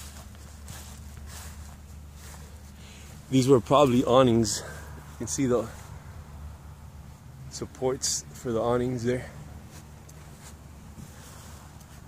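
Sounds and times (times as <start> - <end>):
footsteps walking: 0.0 - 6.1, 9.6 - 12.0
low steady hum: 0.0 - 12.0.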